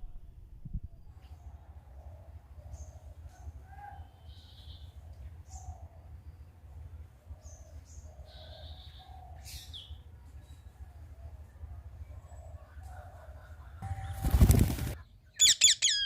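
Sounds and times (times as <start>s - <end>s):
steady low hum: 0.0s - 15.3s
parakeet chirps and calls: 15.4s - 16.0s.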